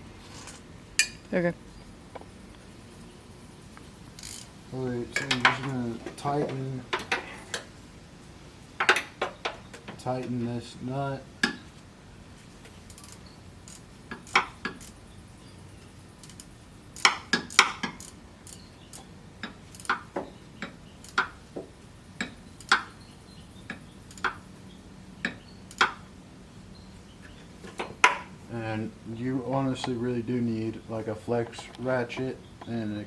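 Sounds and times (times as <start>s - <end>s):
ratchet wrench clicking: 4.2s - 4.5s, 12.9s - 15.0s, 16.2s - 19.0s.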